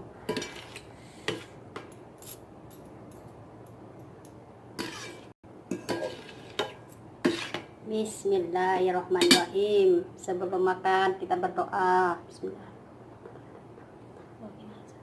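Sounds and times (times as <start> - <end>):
cutlery clinking against a bowl: 0.3 - 3.3, 4.8 - 7.7.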